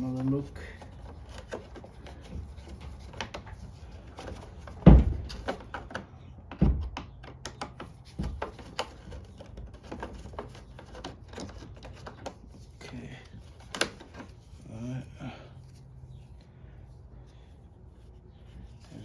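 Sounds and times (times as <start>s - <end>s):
engine parts clicking and knocking: 0.0s - 14.6s
loud thunks: 4.8s - 5.6s, 6.5s - 7.1s.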